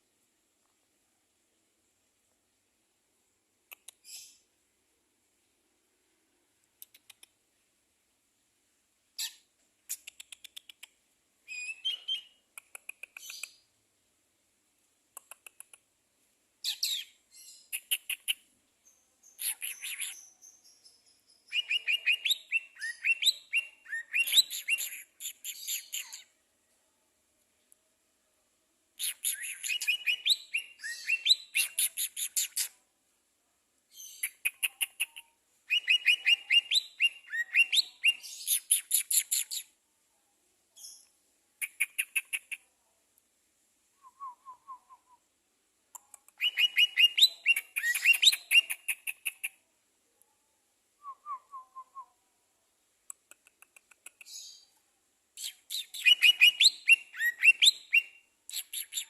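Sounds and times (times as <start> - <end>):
songbird chirping and trilling: 11.5 - 12.4, 16.6 - 26.4, 29.0 - 32.7, 33.9 - 39.8, 45.9 - 49.6, 55.4 - 59.0.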